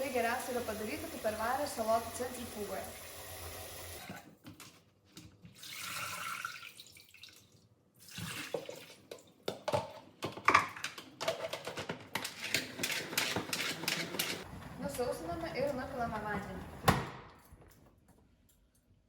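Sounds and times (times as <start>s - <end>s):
tap water running and splashing: 0.0s - 4.2s.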